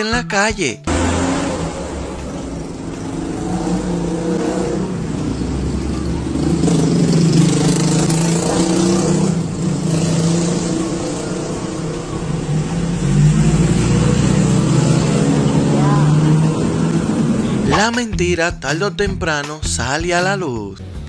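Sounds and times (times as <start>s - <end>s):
car passing: 0.9s - 18.1s
vehicle engine running: 0.9s - 18.4s.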